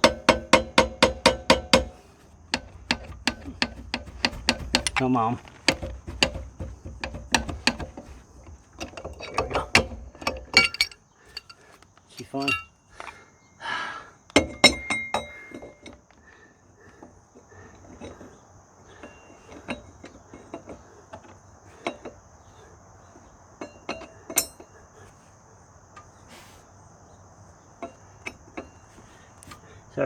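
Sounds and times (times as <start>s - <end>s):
metal tools clanking: 0.0s - 13.3s, 14.4s - 16.0s.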